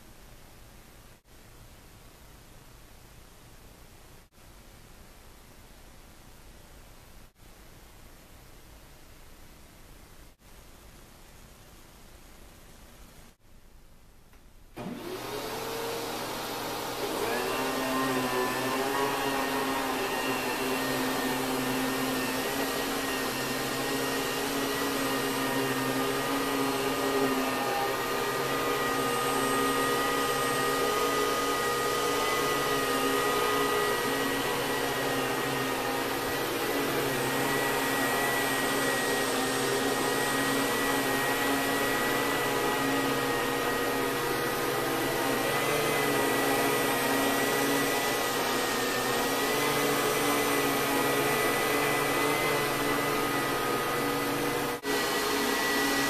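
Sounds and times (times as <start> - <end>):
vacuum cleaner motor whining: 14.8 - 56.0.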